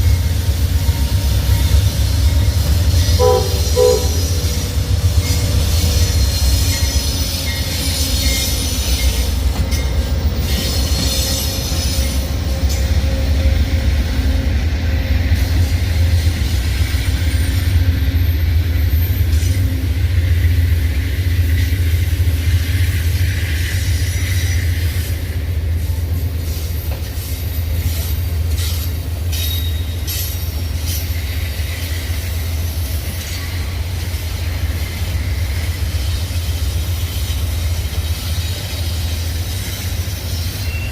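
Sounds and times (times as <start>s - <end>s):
train rumbling: 0.0s - 40.9s
wheel squeal on rails: 0.1s - 13.6s, 26.1s - 40.9s.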